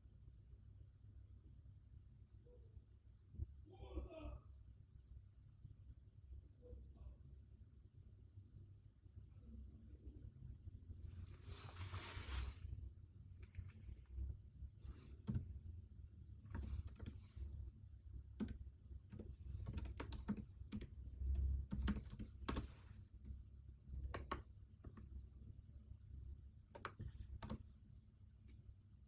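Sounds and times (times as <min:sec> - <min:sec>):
computer keyboard typing: 0:13.4 - 0:14.2, 0:14.9 - 0:15.5, 0:16.5 - 0:17.6, 0:18.4 - 0:23.1, 0:24.1 - 0:24.4, 0:26.8 - 0:27.8.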